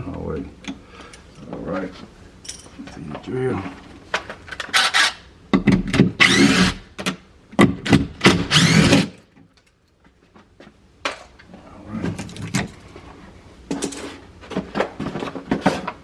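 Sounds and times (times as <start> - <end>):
loud scraping rasp: 6.2 - 6.8, 8.3 - 9.2.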